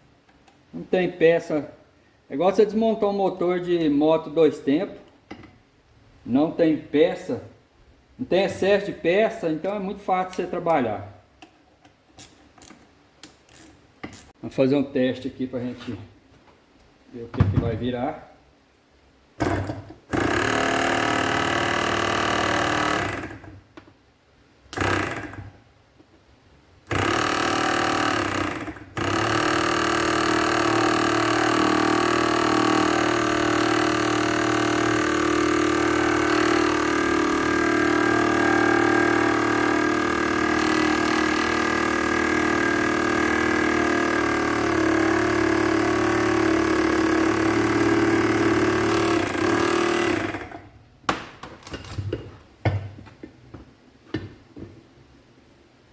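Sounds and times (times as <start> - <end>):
air compressor humming: 19.4 - 23.6, 24.7 - 25.6, 26.9 - 50.7.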